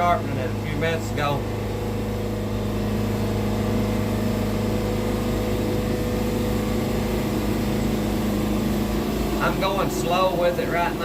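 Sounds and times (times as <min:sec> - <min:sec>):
bandsaw mill cutting log: 0:00.0 - 0:11.0.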